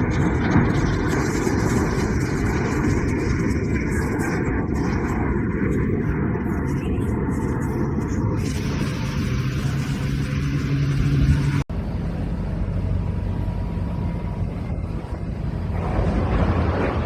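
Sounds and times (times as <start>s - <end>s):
engine droning: 0.0s - 17.0s
low engine rumble with noise: 0.0s - 17.0s.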